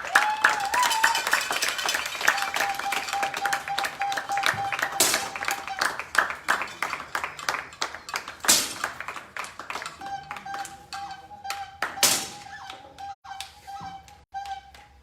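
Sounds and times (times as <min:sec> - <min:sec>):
air pistol shots: 0:05.0 - 0:05.4, 0:08.4 - 0:09.0, 0:12.0 - 0:12.5.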